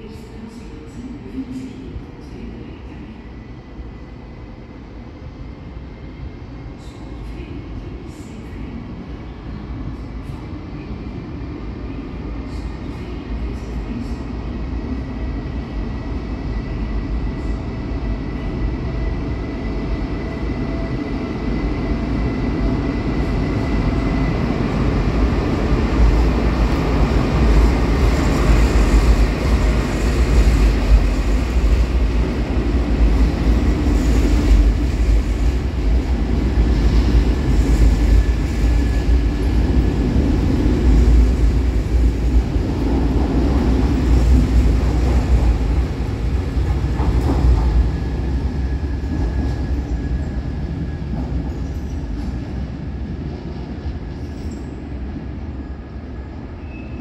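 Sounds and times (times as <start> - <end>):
train wheels rumbling on rail: 12.0 - 57.0.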